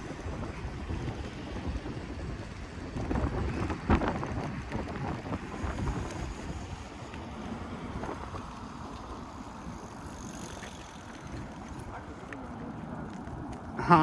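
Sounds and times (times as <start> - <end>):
wind buffeting microphone: 0.0 - 13.8
e-bike rumble: 0.0 - 14.0.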